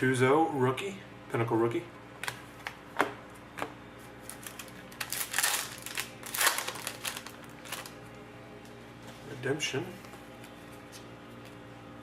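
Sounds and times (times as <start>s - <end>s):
cards rustling: 4.2s - 8.0s.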